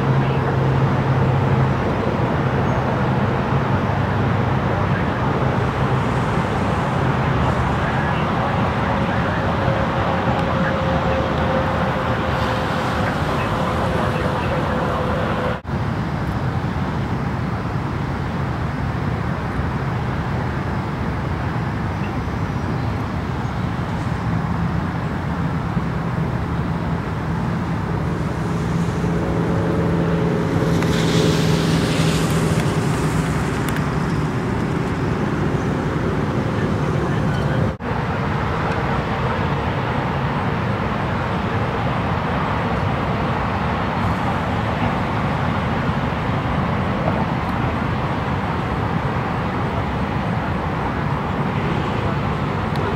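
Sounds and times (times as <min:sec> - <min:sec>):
low engine hum with higher tone: 0:00.0 - 0:52.9
road traffic noise: 0:00.0 - 0:52.9.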